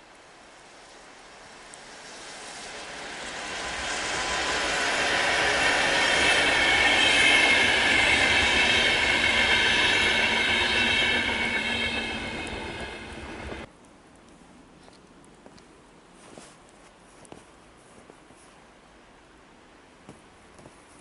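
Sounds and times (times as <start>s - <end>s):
high whine of steady tones: 0.0s - 13.7s
train passing rumble: 0.5s - 13.7s.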